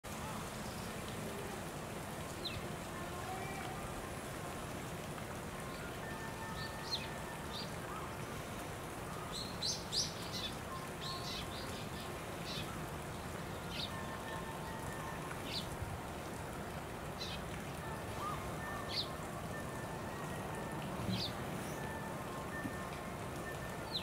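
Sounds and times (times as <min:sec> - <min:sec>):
outdoor background noise: 0:00.0 - 0:24.0
small birds chirping: 0:09.0 - 0:15.8, 0:17.1 - 0:20.4, 0:21.0 - 0:24.0.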